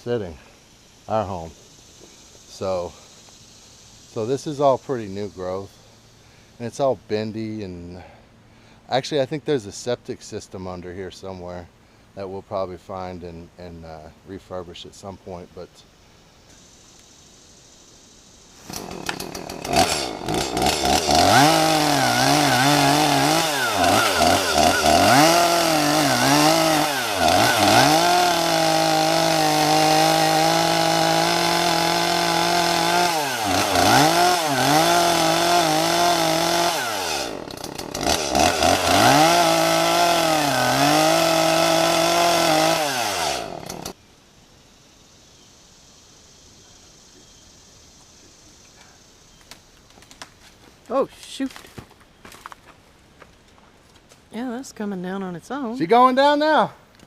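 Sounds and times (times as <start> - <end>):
chainsaw cutting into a tree: 18.6 - 44.0.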